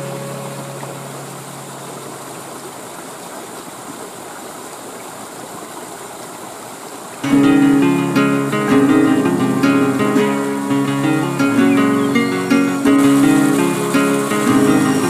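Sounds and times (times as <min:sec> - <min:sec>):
acoustic guitar music: 0:00.0 - 0:01.7, 0:07.2 - 0:15.0
waterfall rushing: 0:00.0 - 0:05.4, 0:06.7 - 0:15.0.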